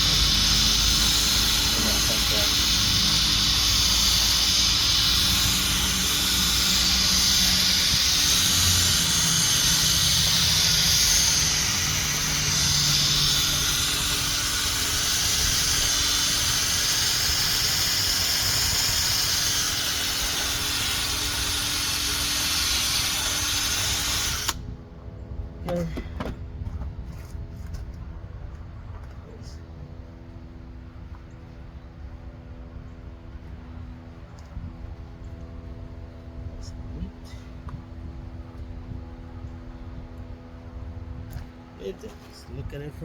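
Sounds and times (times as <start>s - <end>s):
drill motor whine: 0.0s - 24.6s
sanding disc abrasive hiss: 0.0s - 24.6s.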